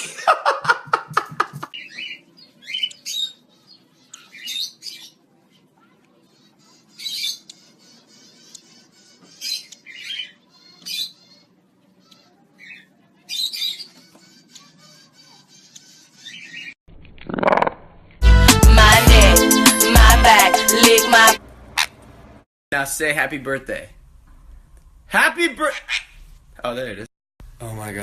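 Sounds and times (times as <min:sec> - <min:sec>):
parrot squawking: 0:25.6 - 0:26.3.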